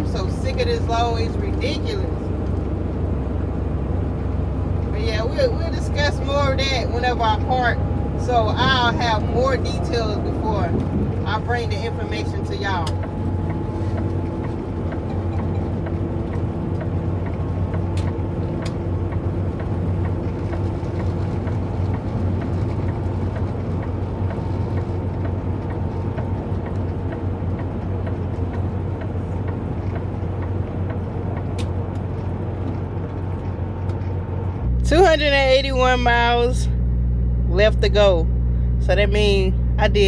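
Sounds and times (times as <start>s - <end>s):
road and tyre noise: 0.0s - 40.0s
truck engine drone: 0.0s - 40.0s.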